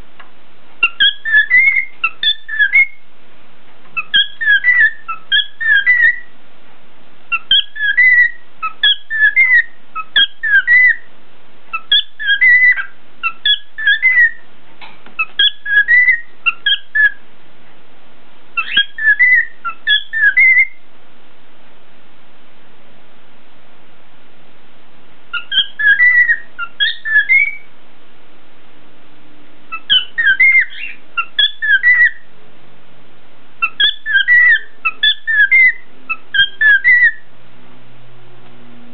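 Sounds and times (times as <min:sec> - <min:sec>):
cockatiel whistling: 0:00.8 - 0:03.0, 0:04.0 - 0:06.3, 0:07.3 - 0:11.1, 0:11.7 - 0:14.4, 0:15.2 - 0:17.2, 0:18.6 - 0:20.8, 0:25.3 - 0:27.7, 0:29.7 - 0:32.2, 0:33.6 - 0:37.3.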